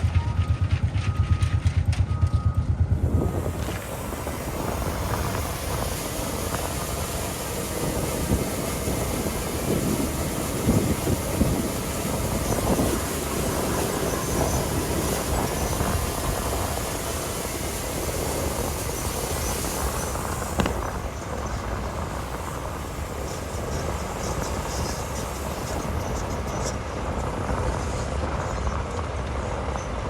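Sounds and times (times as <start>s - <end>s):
reversing alarm beeping: 0.0s - 8.5s
diesel machine engine throbbing: 0.0s - 29.4s.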